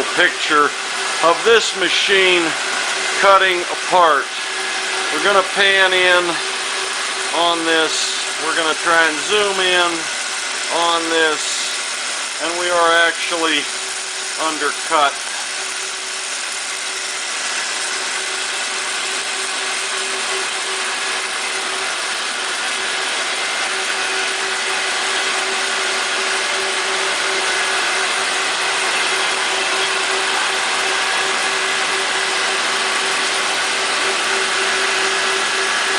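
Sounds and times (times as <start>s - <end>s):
machine cutting with dense crackle: 0.0s - 35.9s
steady machine hum: 0.0s - 35.9s.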